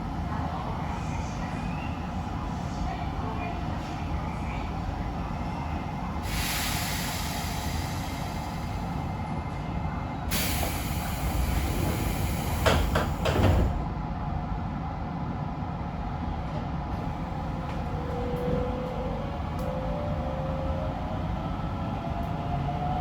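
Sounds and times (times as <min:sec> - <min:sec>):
air hiss of train doors: 0:06.2 - 0:09.1, 0:10.3 - 0:13.9.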